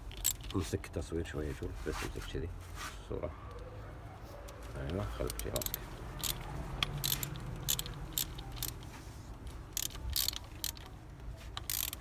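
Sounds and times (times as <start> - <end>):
metallic clicks: 0.0 - 0.5, 5.2 - 8.9, 9.8 - 10.9, 11.6 - 12.0.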